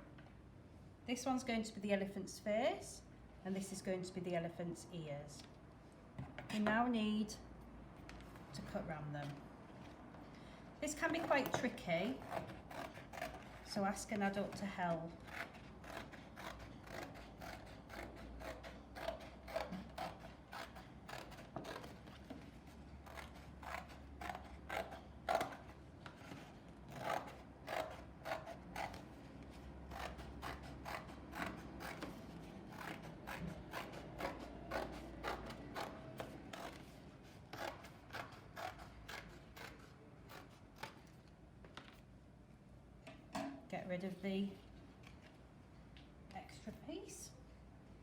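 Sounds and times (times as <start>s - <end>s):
scissors cutting cardboard: 11.0s - 41.2s.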